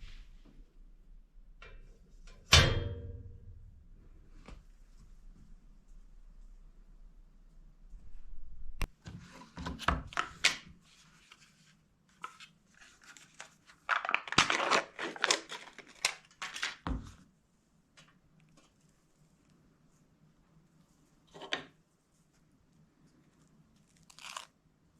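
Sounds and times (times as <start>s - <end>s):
rustling and crinkling: 9.1s - 17.3s, 18.0s - 24.5s.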